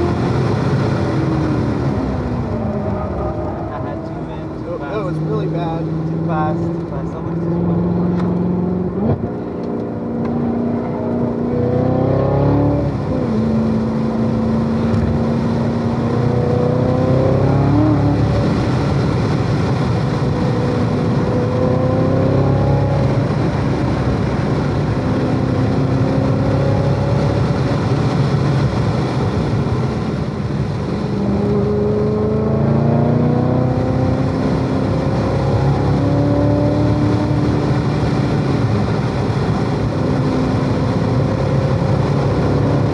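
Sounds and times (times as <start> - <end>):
car engine revving: 0.0 - 42.9.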